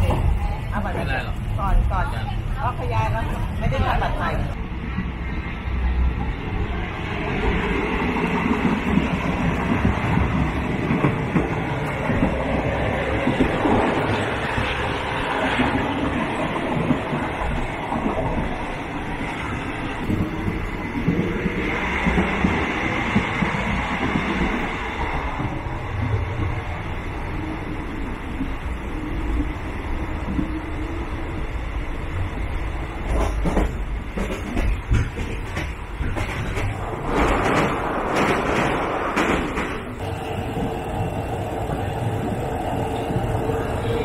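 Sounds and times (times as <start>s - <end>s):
wheels clattering on rails: 33.0s - 44.0s.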